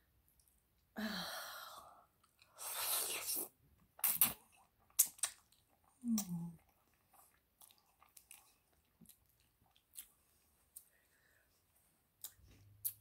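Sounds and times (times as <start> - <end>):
wet chewing with mouth clicks: 3.4 - 11.0, 12.2 - 13.0.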